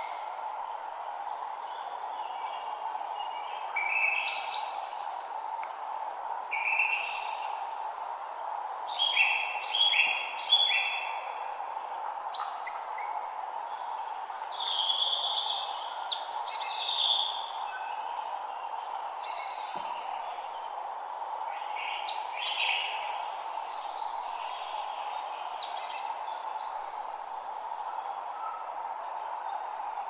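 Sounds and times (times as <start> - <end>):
songbirds singing: 6.5 - 30.0.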